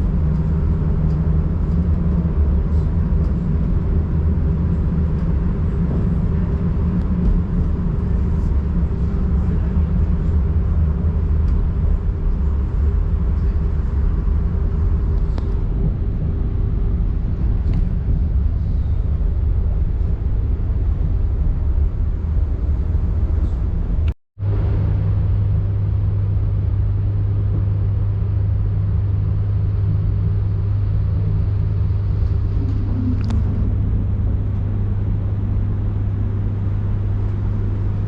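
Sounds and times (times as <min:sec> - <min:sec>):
constant hum: 0:00.0 - 0:38.0
train running gear rumble: 0:00.0 - 0:38.0.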